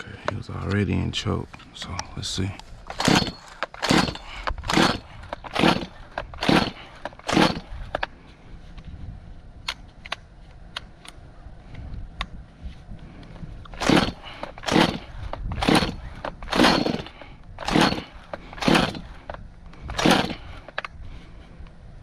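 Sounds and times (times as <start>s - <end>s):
chainsaw engine cranking: 2.8s - 8.1s, 13.6s - 20.9s
chainsaw recoil starter pulls: 2.8s - 8.1s, 13.6s - 20.9s.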